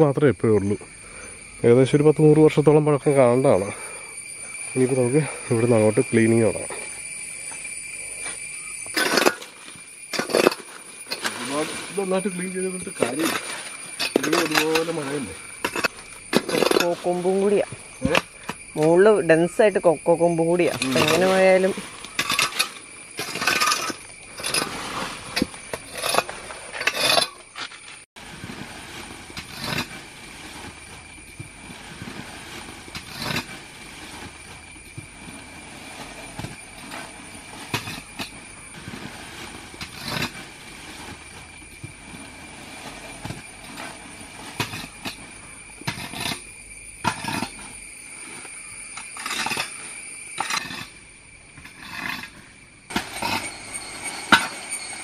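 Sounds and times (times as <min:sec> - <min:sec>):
steady high-pitched tone: 0:52.9 - 0:55.0.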